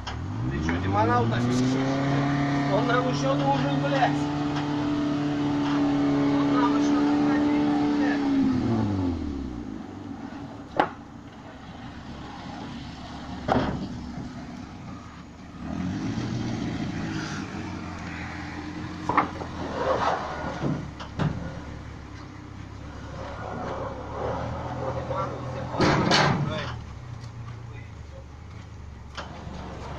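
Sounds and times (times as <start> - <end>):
vehicle engine rumbling: 0.0 - 29.9
sharp knocks or clanks: 25.8 - 26.8.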